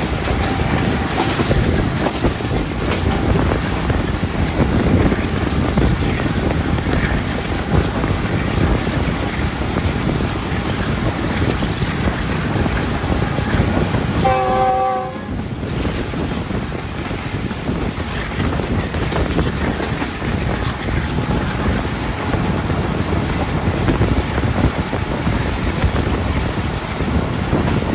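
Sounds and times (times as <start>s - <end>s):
wind and rail noise: 0.0s - 27.9s
train horn blast: 14.2s - 15.4s.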